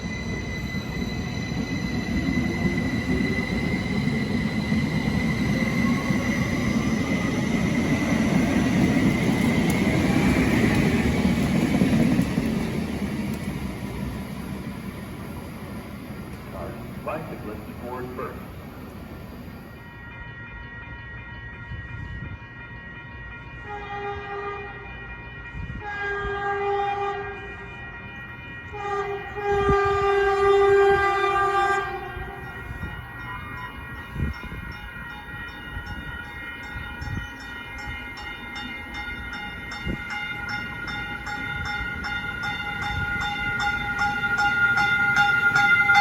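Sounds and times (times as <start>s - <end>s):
train wheels clicking: 0.1s - 15.5s
train horn: 19.8s - 34.3s, 42.7s - 46.0s.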